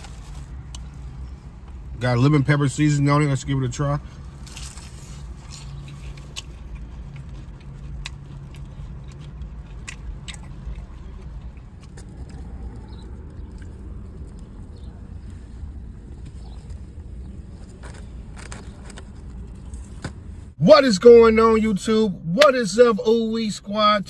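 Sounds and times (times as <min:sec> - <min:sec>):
chewing crispy chicken: 0:04.1 - 0:19.8.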